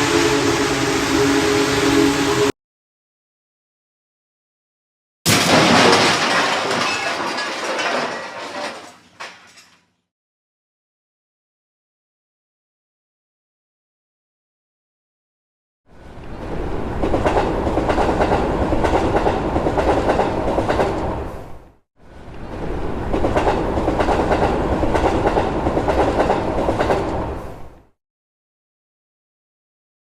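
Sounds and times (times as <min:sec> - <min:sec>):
train clickety-clack on rails: 0:16.6 - 0:21.3, 0:22.4 - 0:27.9.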